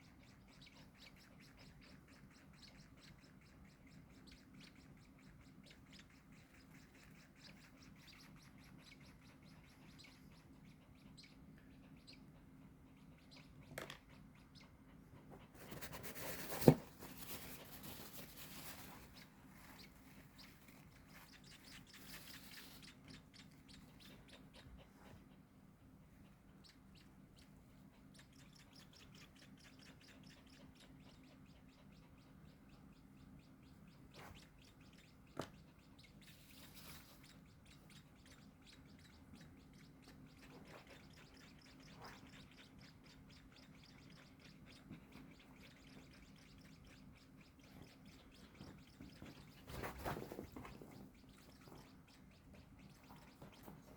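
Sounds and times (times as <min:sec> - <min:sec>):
baby birds cheeping: 0:00.0 - 0:53.9
rustling: 0:15.4 - 0:22.9, 0:48.7 - 0:51.8.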